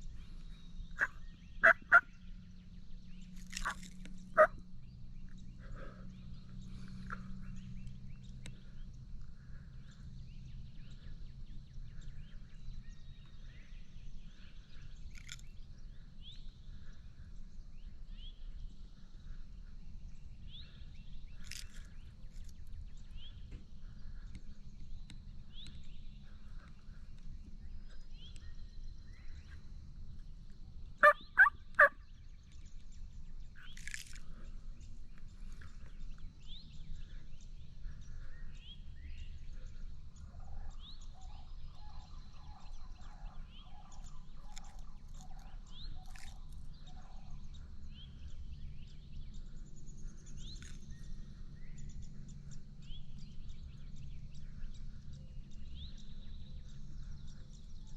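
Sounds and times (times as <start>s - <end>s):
small birds chirping: 0.0s - 57.9s
steady low rumble: 0.0s - 57.9s
turkey calls: 1.0s - 2.1s, 3.5s - 4.6s, 31.0s - 32.0s.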